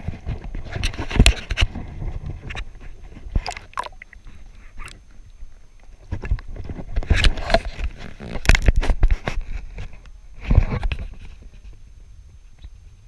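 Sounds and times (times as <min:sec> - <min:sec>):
water splashing: 0:03.3 - 0:04.9.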